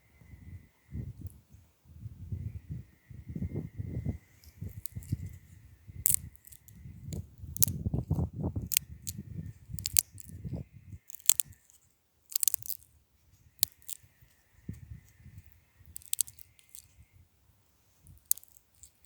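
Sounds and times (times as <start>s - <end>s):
close-up crunching and crackling: 4.4s - 14.4s, 15.0s - 17.0s, 17.9s - 19.0s.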